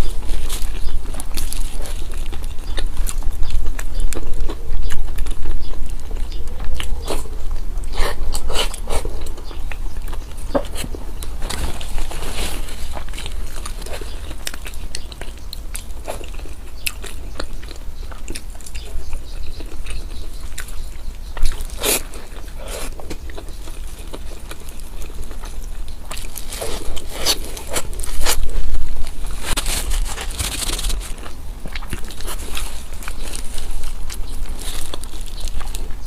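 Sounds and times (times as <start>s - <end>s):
person crunching and chewing food: 0.0s - 36.0s.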